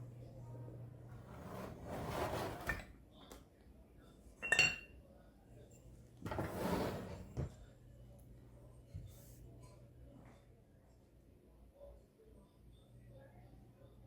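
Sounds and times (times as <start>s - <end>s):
kitchenware scraping: 1.1s - 2.9s, 6.2s - 7.5s.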